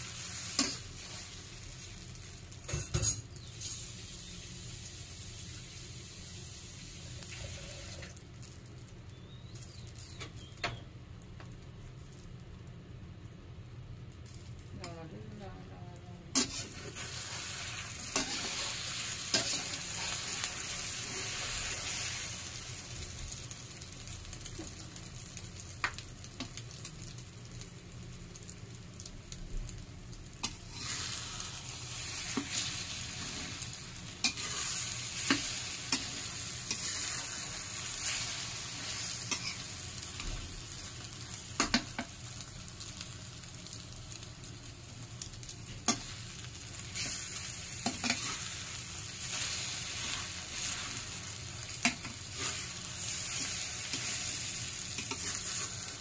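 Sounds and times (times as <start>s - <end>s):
omelette sizzling in hot oil: 0.0s - 56.0s
metal spatula scraping a wok: 16.3s - 22.0s, 34.2s - 39.7s.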